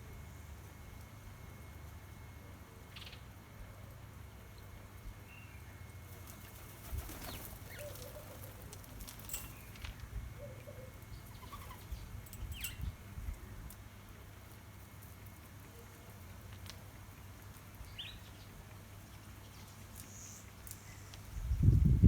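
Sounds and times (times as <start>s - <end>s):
birds chirping: 5.4s - 13.0s
wing flutters: 6.2s - 9.7s.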